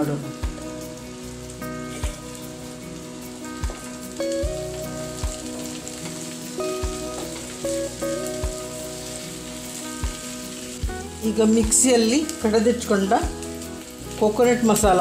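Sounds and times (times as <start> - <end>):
okra sizzling in hot oil: 0.0 - 15.0
soft background music: 0.0 - 15.0
spatula in pan: 1.8 - 2.4.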